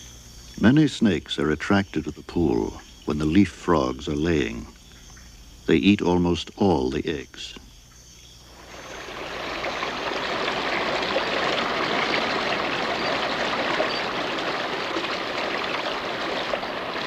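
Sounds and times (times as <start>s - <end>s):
forest stream running: 8.4s - 17.0s.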